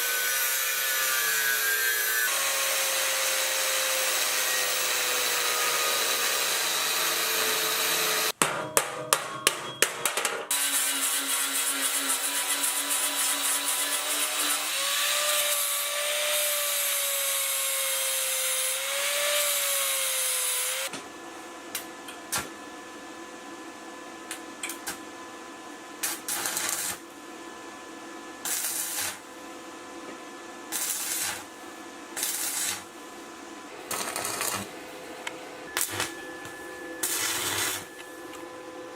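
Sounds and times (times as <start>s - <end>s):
power tool running on metal: 0.0s - 8.3s, 33.9s - 34.7s, 37.0s - 38.0s.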